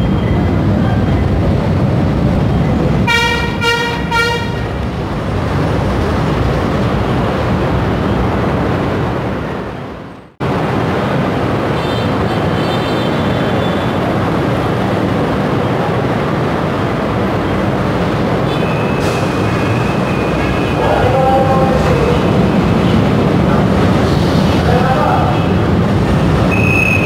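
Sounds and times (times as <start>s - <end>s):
train rumble: 0.0s - 27.0s
train horn toots: 3.1s - 4.8s.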